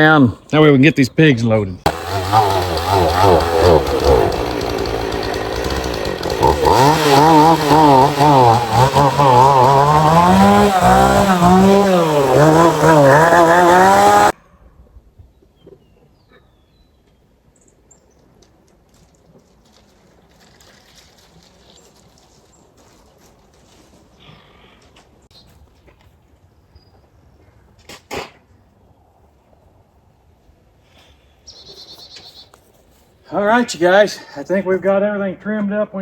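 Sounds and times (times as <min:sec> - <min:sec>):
chainsaw cutting tree limbs: 0:01.9 - 0:14.4.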